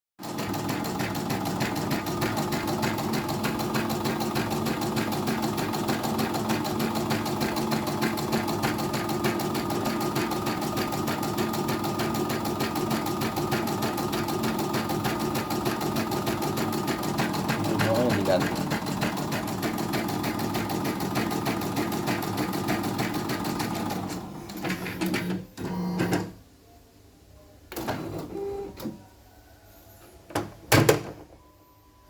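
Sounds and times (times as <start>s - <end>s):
embroidery machine needle clatter: 0.3s - 24.0s.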